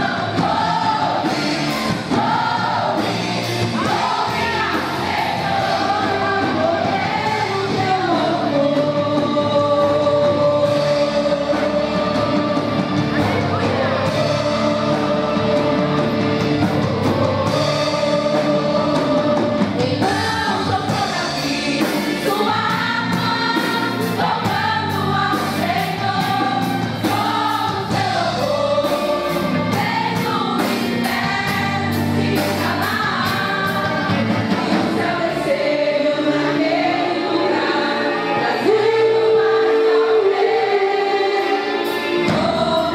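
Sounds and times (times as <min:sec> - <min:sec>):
instrumental accompaniment: 0:00.0 - 0:42.9
women's choir singing gospel: 0:00.0 - 0:42.9.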